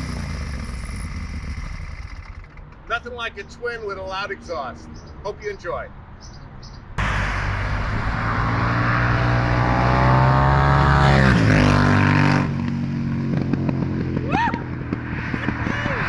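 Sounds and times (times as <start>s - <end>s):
motorcycle engine revving: 0.0s - 2.8s, 7.0s - 16.0s.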